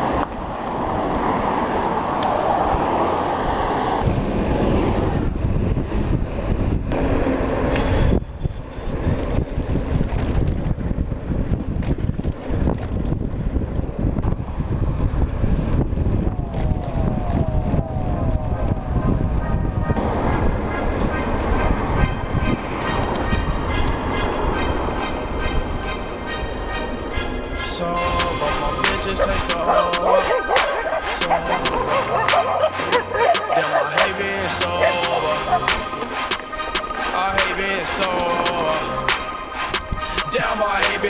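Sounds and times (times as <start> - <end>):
bicycle riding rumble: 0.0 - 27.7
wind buffeting microphone: 0.0 - 27.9.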